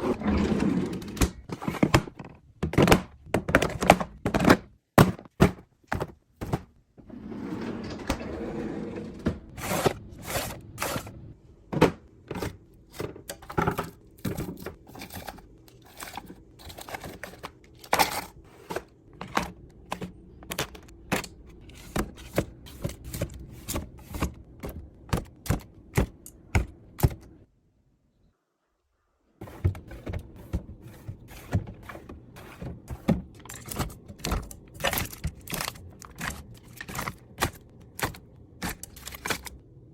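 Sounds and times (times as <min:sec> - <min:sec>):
plastic containers tapping and knocking: 0:01.3 - 0:06.8, 0:11.7 - 0:27.3, 0:29.4 - 0:39.5
packaging rustling and crinkling: 0:32.6 - 0:39.6.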